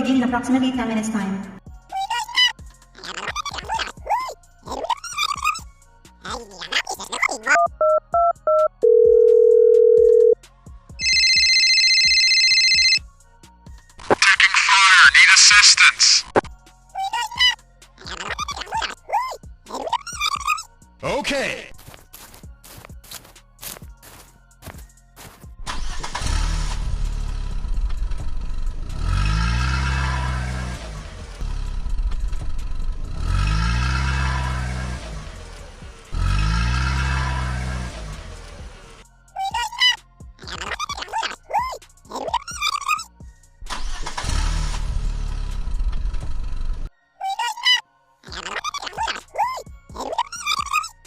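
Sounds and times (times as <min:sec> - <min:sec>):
soft background music: 0:00.0 - 0:15.6, 0:16.2 - 0:27.3, 0:32.6 - 0:44.7, 0:46.9 - 0:51.0
short telephone beep: 0:07.8 - 0:10.4
steady telephone tone: 0:08.8 - 0:10.4, 0:11.0 - 0:13.0
engine revving: 0:25.6 - 0:39.1, 0:43.6 - 0:46.9.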